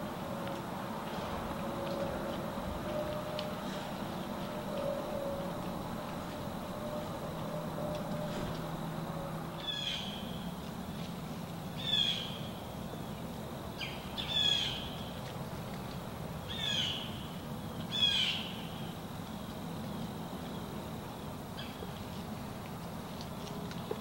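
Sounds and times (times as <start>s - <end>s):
low background noise: 0.0s - 24.0s
bird calling: 1.6s - 11.1s, 11.8s - 12.5s, 13.8s - 15.1s, 16.5s - 18.9s.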